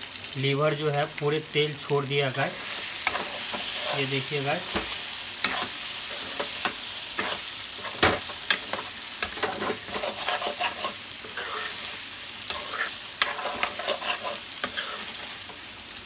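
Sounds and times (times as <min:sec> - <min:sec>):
meat sizzling in oil: 0:00.0 - 0:16.0
spatula scraping pan: 0:02.6 - 0:15.7
spatula clanking against pan: 0:12.5 - 0:14.9.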